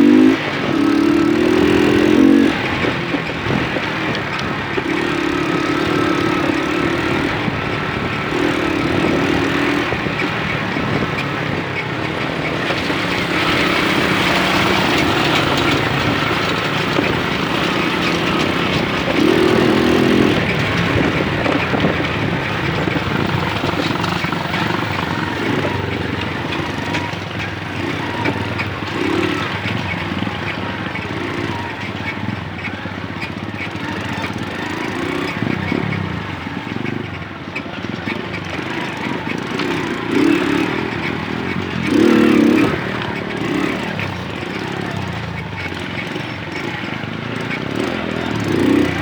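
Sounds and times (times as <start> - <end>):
moped engine running: 0.0 - 49.0.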